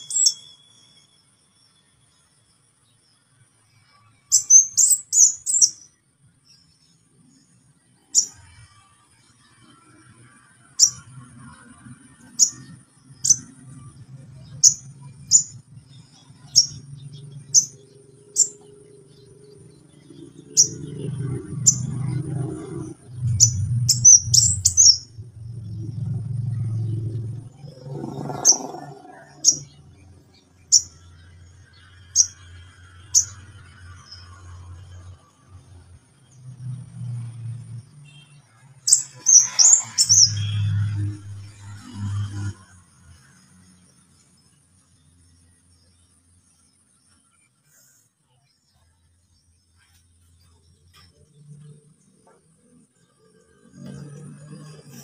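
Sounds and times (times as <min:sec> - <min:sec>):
bird chip calls: 0:04.3 - 0:05.8, 0:23.2 - 0:25.1.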